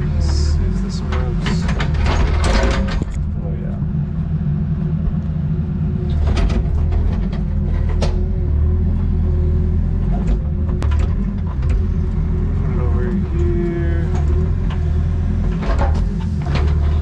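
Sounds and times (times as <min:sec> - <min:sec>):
excavator diesel engine running: 0:00.0 - 0:17.0
sharp knocks and cracks: 0:01.1 - 0:03.3.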